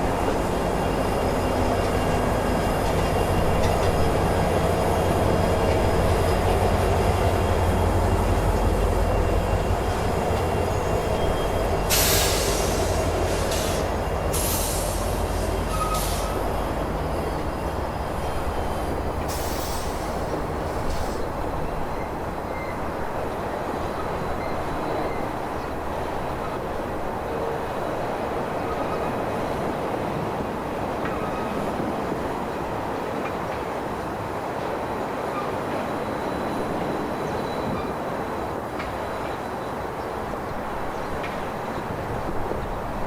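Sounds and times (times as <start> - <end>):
freight train rumbling past: 0.0 - 43.0
wheels squealing: 0.5 - 22.8.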